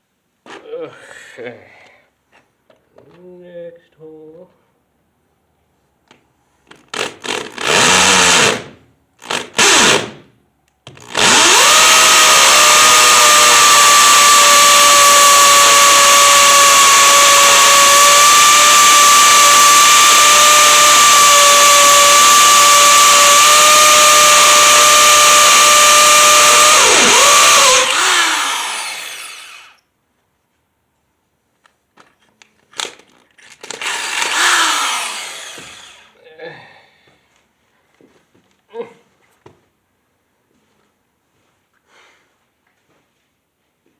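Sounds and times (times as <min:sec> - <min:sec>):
hammer drill boring into concrete: 0:06.9 - 0:10.2, 0:10.9 - 0:29.8, 0:33.6 - 0:36.1.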